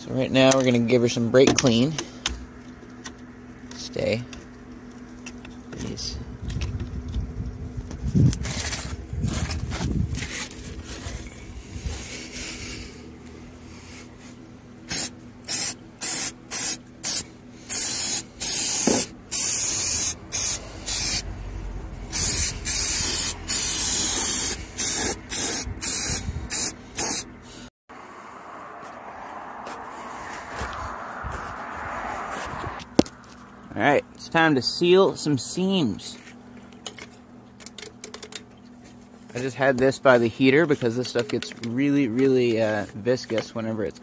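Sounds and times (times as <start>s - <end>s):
aerosol can spraying: 14.9s - 21.2s, 22.1s - 27.3s.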